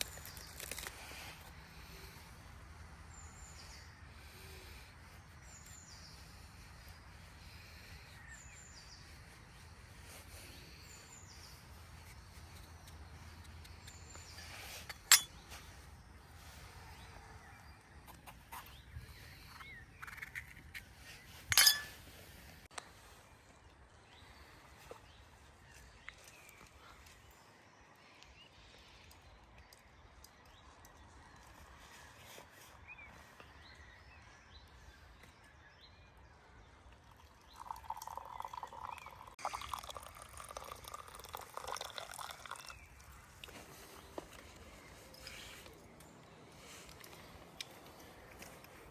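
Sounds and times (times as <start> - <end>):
faint birdsong: 0.0 - 48.9
sharp clink: 14.8 - 15.5, 21.5 - 22.0
liquid pouring: 37.2 - 43.2.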